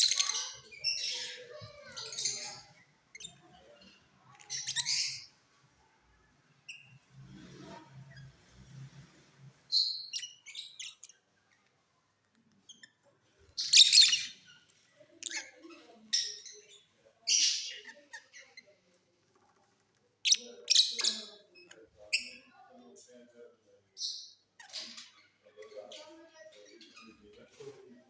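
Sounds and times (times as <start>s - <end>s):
lovebirds chirping: 0.0s - 5.4s, 13.4s - 18.7s.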